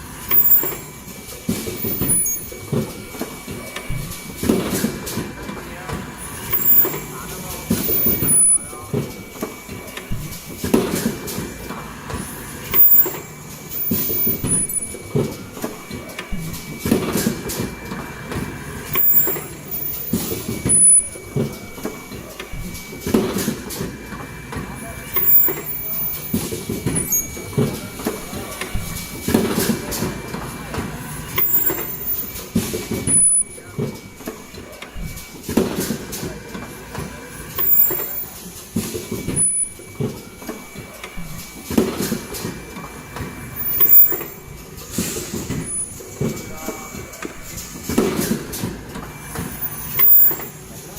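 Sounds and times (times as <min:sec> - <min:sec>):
high whine: 0:00.0 - 0:35.4
machine knocks and clatter: 0:00.0 - 0:50.9
short high-pitched tones: 0:00.3 - 0:01.0, 0:01.8 - 0:02.5.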